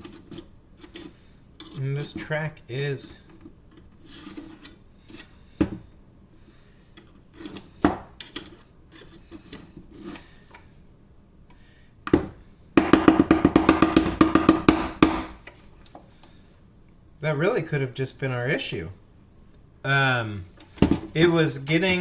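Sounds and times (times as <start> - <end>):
rattling knocks of door parts: 12.1 - 15.5, 20.7 - 21.2.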